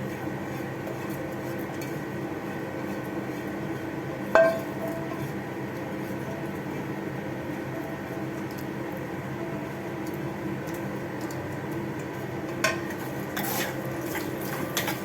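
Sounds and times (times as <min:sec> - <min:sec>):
metal spoon scraping a pot: 0:12.7 - 0:15.0.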